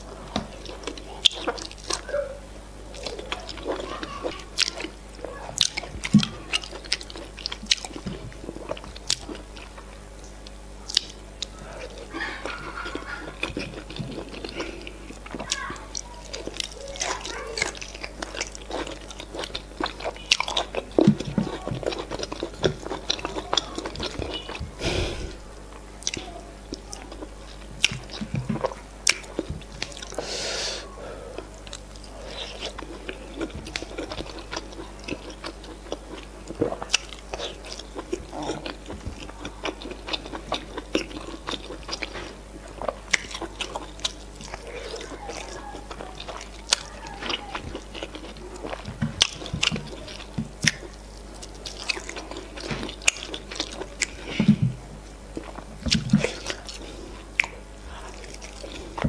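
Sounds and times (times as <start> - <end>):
chewing with wet mouth clicks: 0.3 - 2.1, 2.9 - 24.8, 25.7 - 30.2, 31.4 - 59.0
breathy hisses: 24.8 - 25.5, 30.2 - 31.4.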